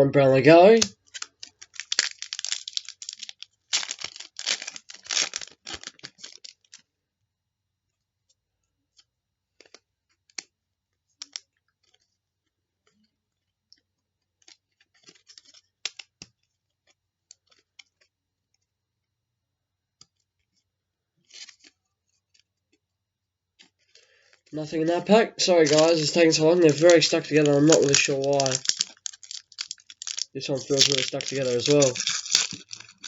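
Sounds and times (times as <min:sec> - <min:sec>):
cards clicking and snapping: 0:00.7 - 0:06.9, 0:11.2 - 0:12.1, 0:14.3 - 0:18.1, 0:24.9 - 0:33.0
wrapper crinkling and tearing: 0:00.7 - 0:06.9, 0:14.4 - 0:16.1, 0:24.0 - 0:33.0.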